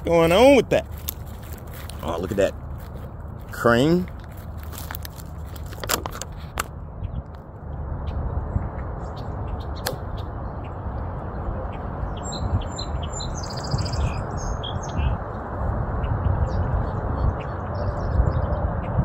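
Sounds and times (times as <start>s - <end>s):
steady low rumble: 0.0s - 19.0s
small birds chirping: 8.0s - 15.2s, 16.0s - 19.0s
bird trill: 11.7s - 15.2s.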